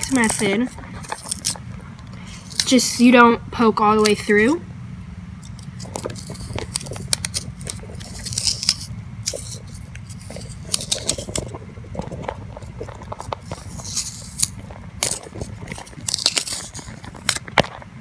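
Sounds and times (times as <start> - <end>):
hand tool scraping gourd: 0.0 - 1.6, 5.4 - 17.6
steady low hum: 0.0 - 18.0.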